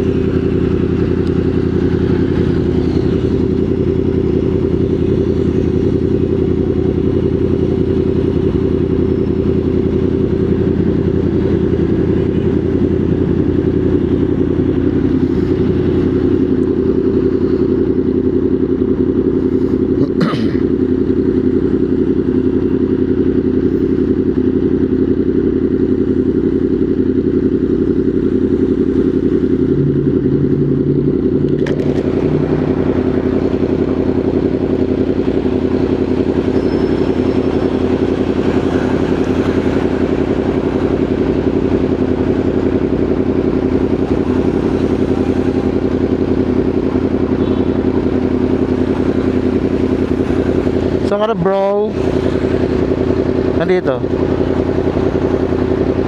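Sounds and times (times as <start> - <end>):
wind and road noise: 0.0 - 20.0, 27.6 - 47.6
motorcycle engine running: 0.0 - 56.0.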